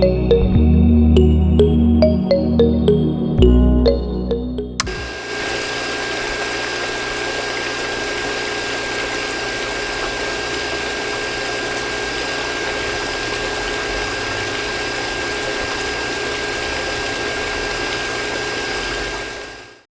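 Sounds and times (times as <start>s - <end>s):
flowing water: 4.8s - 19.8s
water pump motor whine: 4.8s - 19.9s.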